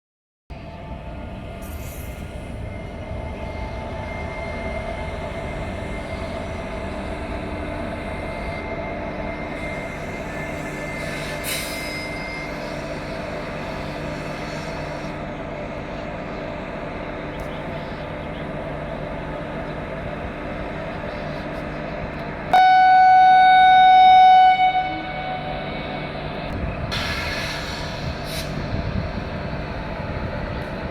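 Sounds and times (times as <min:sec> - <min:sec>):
train rumbling on rails: 0:00.5 - 0:30.9.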